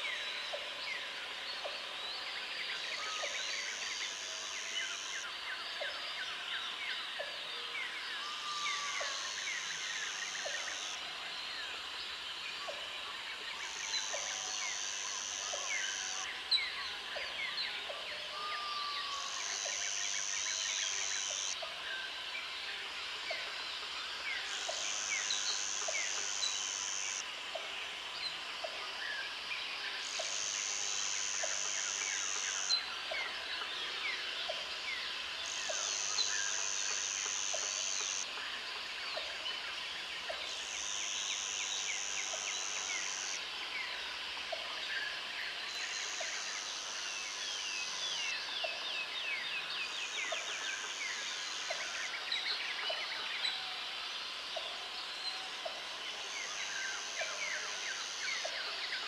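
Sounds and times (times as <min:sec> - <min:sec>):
high buzzing insect call: 0:13.6 - 0:16.3, 0:19.1 - 0:21.6, 0:24.3 - 0:27.4, 0:29.9 - 0:32.9, 0:34.9 - 0:38.6, 0:40.4 - 0:44.2.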